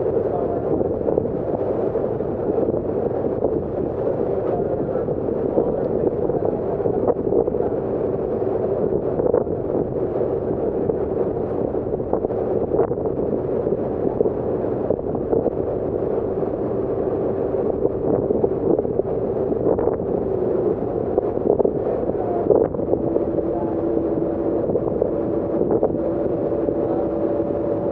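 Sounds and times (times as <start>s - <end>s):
ferry engine drone: 0.0s - 27.9s
wind on microphone: 0.0s - 27.9s.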